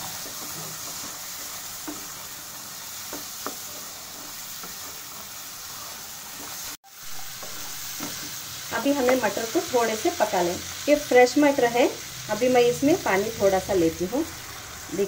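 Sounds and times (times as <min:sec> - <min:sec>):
peas sizzling in a frying pan: 0:00.0 - 0:15.0.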